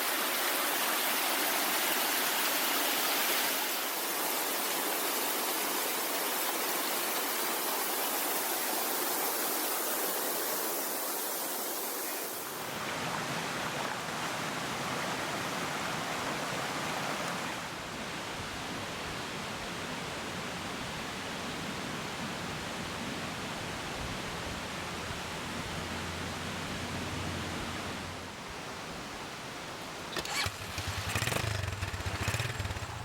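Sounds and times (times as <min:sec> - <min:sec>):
waterfall rushing: 0:00.0 - 0:14.3.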